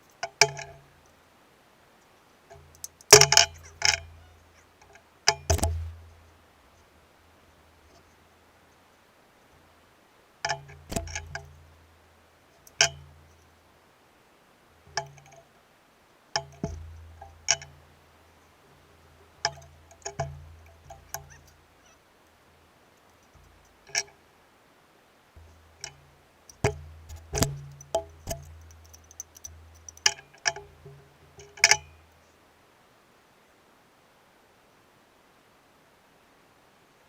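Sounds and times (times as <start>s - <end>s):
dull low knocks: 5.4s - 6.3s, 25.4s - 31.6s.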